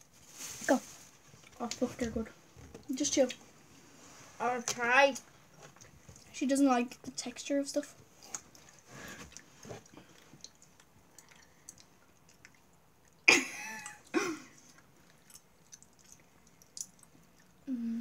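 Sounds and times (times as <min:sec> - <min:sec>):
girl chewing sweets: 0:04.6 - 0:18.0
girl laughing: 0:13.3 - 0:14.5.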